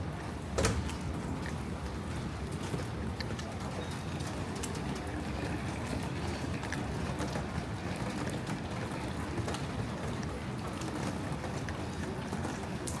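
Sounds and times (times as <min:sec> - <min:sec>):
rain hissing on a street: 0:00.0 - 0:13.0.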